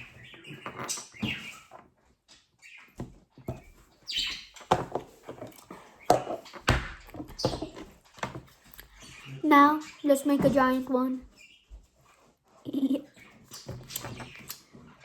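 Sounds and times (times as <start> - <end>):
toys clacking and knocking: 4.6 - 8.9, 10.2 - 11.0.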